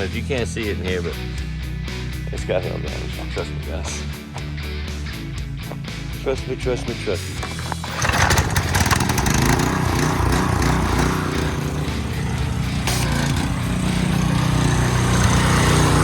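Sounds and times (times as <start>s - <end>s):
car engine with deep exhaust: 8.5s - 16.0s.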